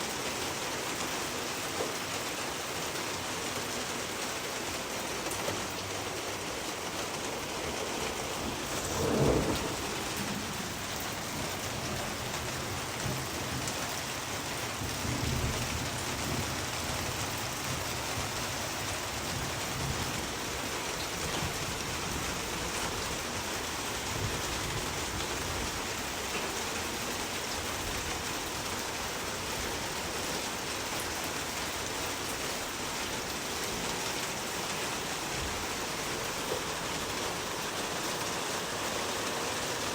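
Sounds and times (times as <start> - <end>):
steady rain hiss: 0.0 - 39.9
rumble: 8.4 - 11.4.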